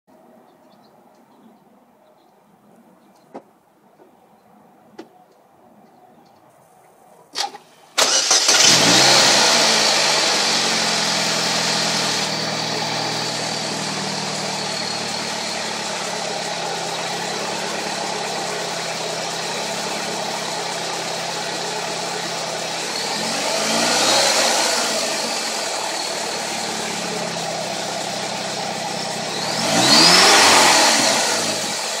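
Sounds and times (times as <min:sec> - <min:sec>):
car engine starting and idling: 0:07.4 - 0:32.0
engine revving: 0:08.0 - 0:32.0
supercharger whine: 0:08.0 - 0:32.0.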